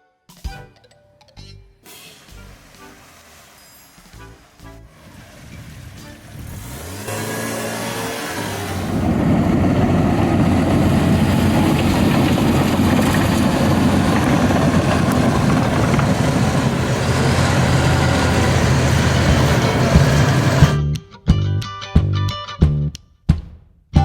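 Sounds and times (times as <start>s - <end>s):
vehicle engine droning: 2.4s - 20.8s.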